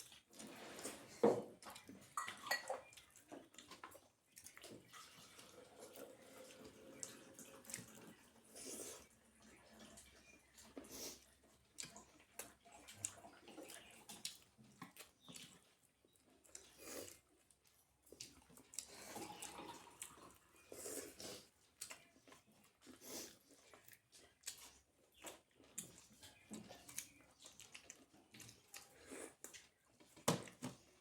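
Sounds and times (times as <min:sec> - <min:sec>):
chewing and wet mouth noises: 0:00.0 - 0:01.0, 0:01.6 - 0:31.0.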